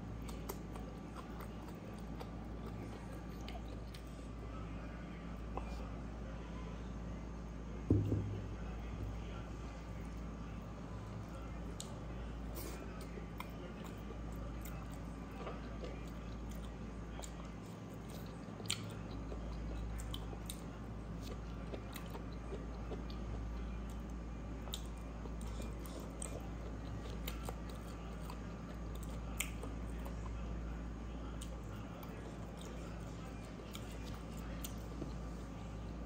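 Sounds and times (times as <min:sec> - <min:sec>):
mouth chewing wet smacking: 0:00.2 - 0:04.4, 0:12.6 - 0:30.4, 0:31.3 - 0:36.0.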